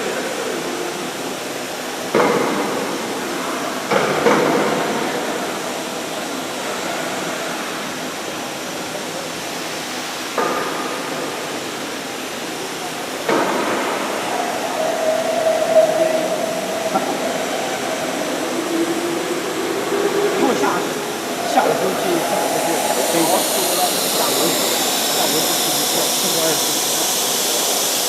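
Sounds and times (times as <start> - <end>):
woodworking machinery whirring: 13.2 - 28.0.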